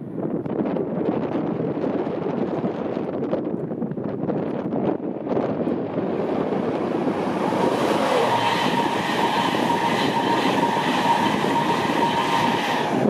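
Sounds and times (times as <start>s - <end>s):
train wheels rushing on rail: 5.2s - 13.0s
thin steady whine: 5.7s - 13.0s.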